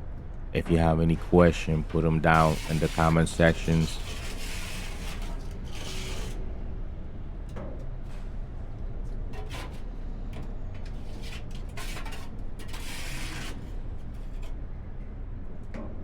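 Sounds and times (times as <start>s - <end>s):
shovel scraping metal floor: 1.2s - 6.4s, 9.3s - 14.6s.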